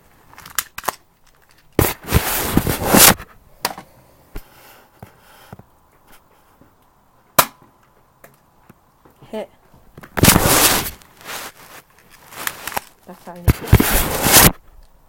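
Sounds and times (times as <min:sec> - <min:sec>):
bb pistol shot snap: 0:07.4 - 0:07.6
burst of noise: 0:10.2 - 0:11.0.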